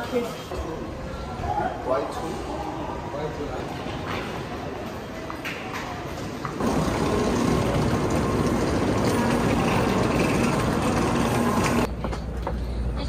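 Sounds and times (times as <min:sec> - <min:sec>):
station concourse noise: 0:02.1 - 0:12.1
train humming and rushing: 0:06.1 - 0:11.9.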